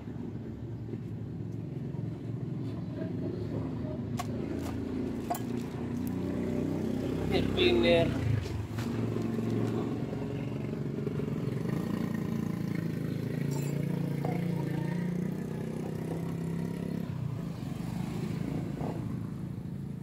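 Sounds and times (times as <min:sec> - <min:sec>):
motorcycle engine idling: 0:04.0 - 0:17.2.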